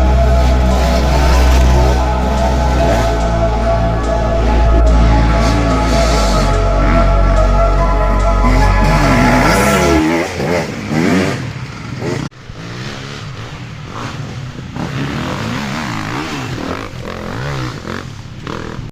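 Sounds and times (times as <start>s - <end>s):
motorcycle engines revving: 0.0s - 18.9s.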